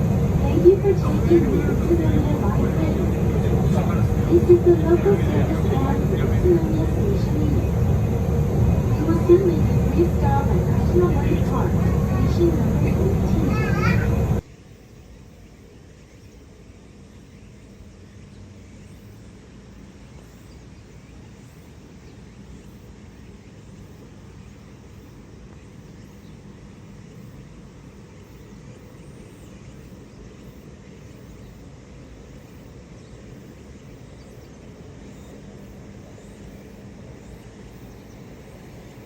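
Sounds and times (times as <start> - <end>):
tram wheels rumbling on rail: 0.0 - 14.4
faint motor hum: 0.0 - 39.0.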